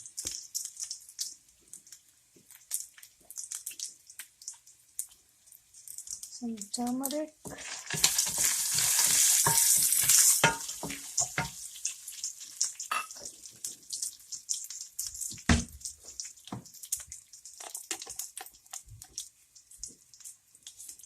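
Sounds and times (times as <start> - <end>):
oil sizzling in a pan: 0.0 - 21.0
spoon stirring in a pan: 0.0 - 21.0.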